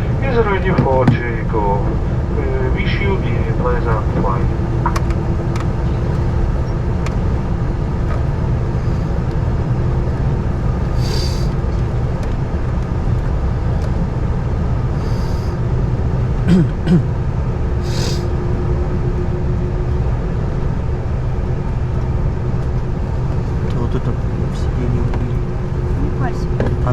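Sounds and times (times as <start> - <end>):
jet engines rumbling: 0.0 - 26.9
brief hisses: 11.0 - 11.5.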